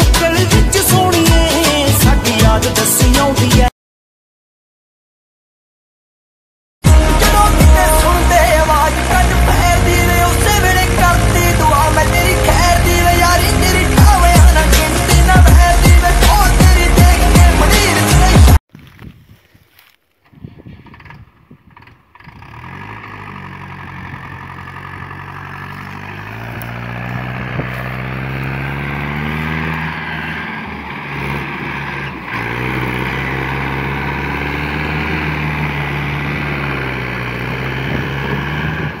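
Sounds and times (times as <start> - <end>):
tractor diesel engine revving: 6.8 - 18.6, 20.6 - 39.0.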